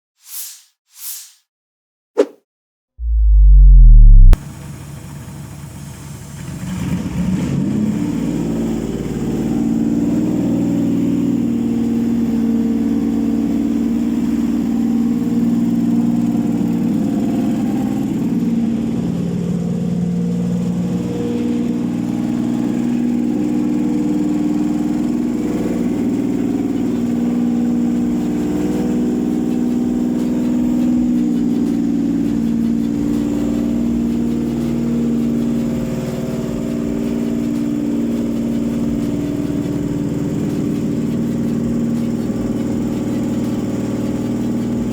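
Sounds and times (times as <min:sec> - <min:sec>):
engine starting and running: 0:03.0 - 0:09.7, 0:20.5 - 0:44.9.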